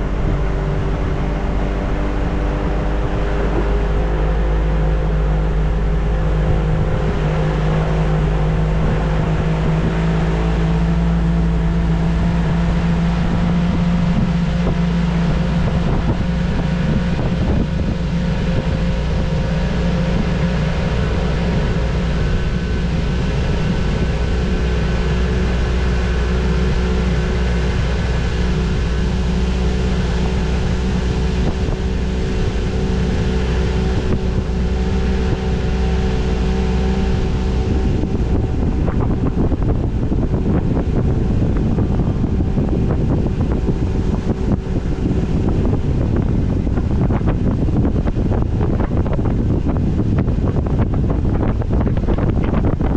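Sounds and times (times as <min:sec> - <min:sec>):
boat motor running: 0:00.0 - 0:52.9
wind and water rushing: 0:00.0 - 0:52.9.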